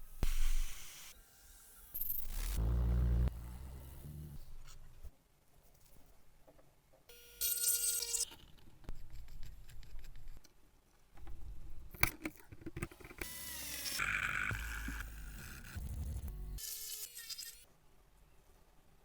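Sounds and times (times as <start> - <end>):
power tool whirring: 13.2 - 15.2.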